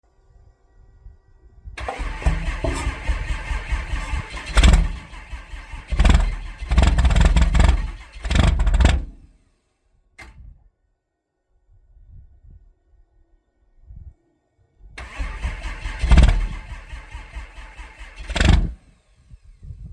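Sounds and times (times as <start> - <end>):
diesel engine cranking: 1.8 - 9.4, 15.0 - 19.1.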